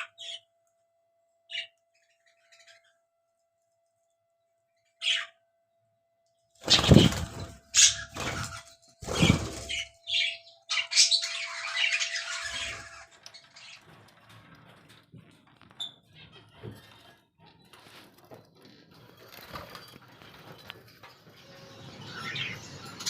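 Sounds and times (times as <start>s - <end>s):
budgerigars chattering and squawking: 5.0s - 5.4s, 6.6s - 13.9s.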